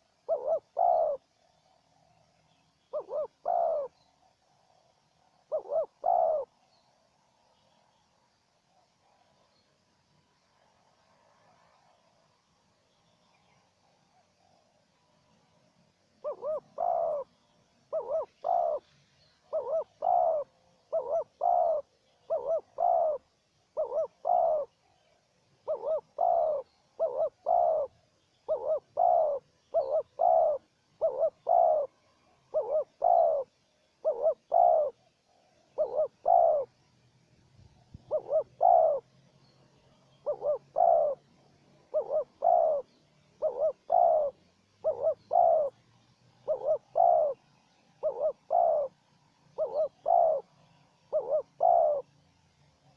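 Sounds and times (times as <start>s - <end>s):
doves cooing: 0.0s - 1.9s, 2.9s - 4.0s, 4.6s - 6.6s, 16.2s - 24.9s, 25.6s - 36.9s, 37.9s - 52.2s.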